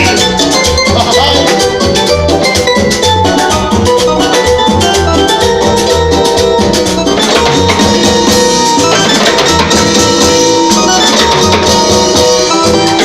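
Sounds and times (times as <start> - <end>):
bass line: 0.0 - 13.0
live dance band playing: 0.0 - 13.0
percussion beat: 0.0 - 13.0.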